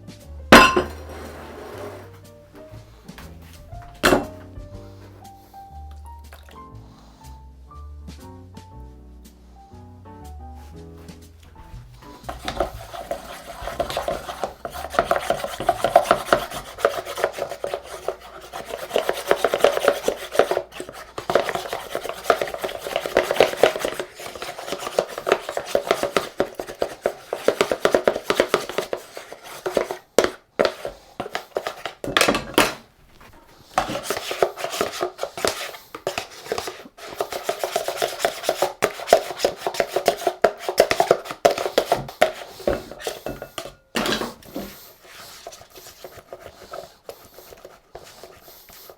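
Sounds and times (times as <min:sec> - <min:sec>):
kitchen utensils tapping and scraping: 0:00.5 - 0:02.2, 0:03.1 - 0:04.8, 0:11.4 - 0:48.9.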